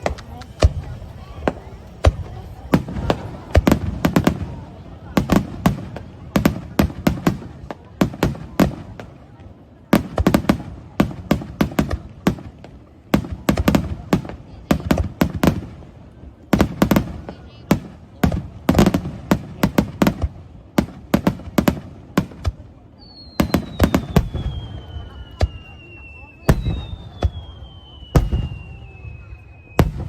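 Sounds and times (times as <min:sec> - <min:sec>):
fireworks bangs: 0:00.0 - 0:30.0
firework whistle sliding down: 0:23.1 - 0:30.0.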